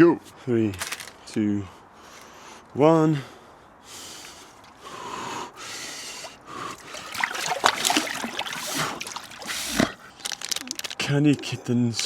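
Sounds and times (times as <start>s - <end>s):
person breathing hissing breaths: 1.8s - 10.4s
water sloshing and splashing: 6.1s - 11.0s.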